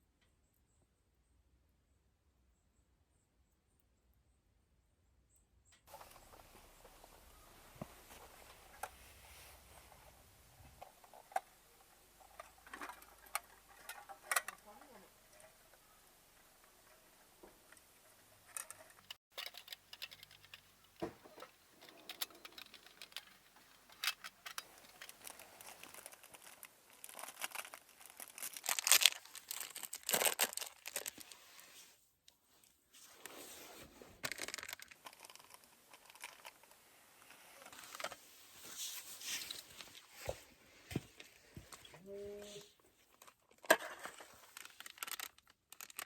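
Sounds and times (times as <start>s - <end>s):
scattered clicks: 18.5s - 26.6s
paper or plastic crinkling: 21.8s - 31.8s, 33.0s - 36.5s, 43.8s - 46.0s.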